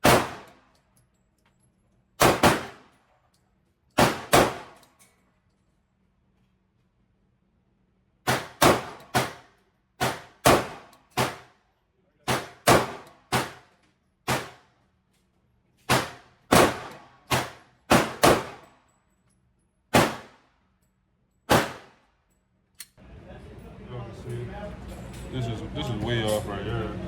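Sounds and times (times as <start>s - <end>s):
pistol shots indoors: 0.0s - 1.1s, 2.2s - 3.2s, 3.9s - 5.0s, 8.2s - 15.0s, 15.8s - 19.0s, 19.8s - 23.0s.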